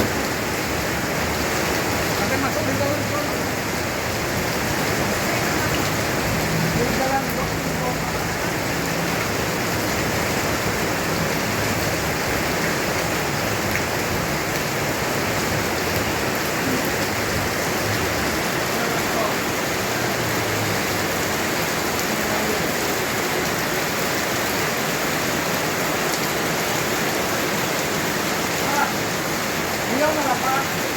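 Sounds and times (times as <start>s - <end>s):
heavy rain pouring: 0.0s - 30.9s.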